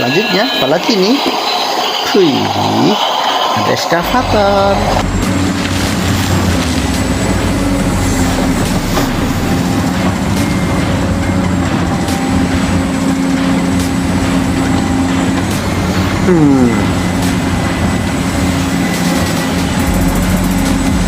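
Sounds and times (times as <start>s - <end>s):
machine humming: 0.0s - 21.0s.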